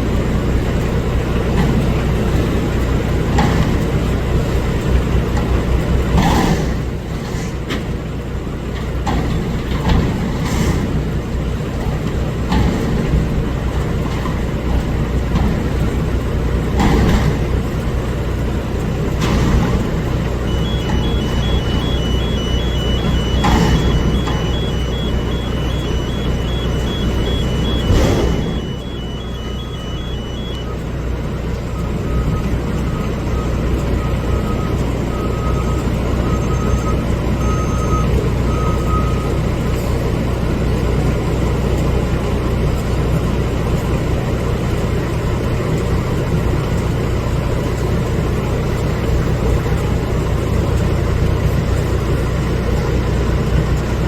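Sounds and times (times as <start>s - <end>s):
diesel engine running: 0.0s - 54.0s
backup alarm beeping: 19.3s - 39.5s
rapid high-pitched beeping: 19.9s - 30.9s.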